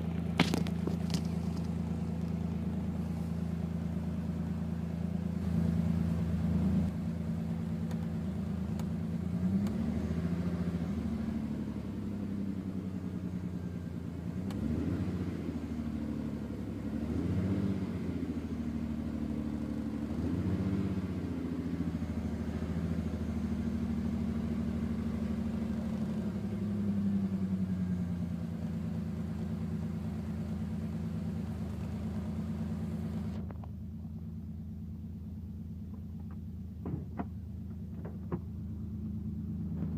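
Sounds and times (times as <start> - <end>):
car engine revving roughly: 16.8 - 18.3, 20.1 - 21.3.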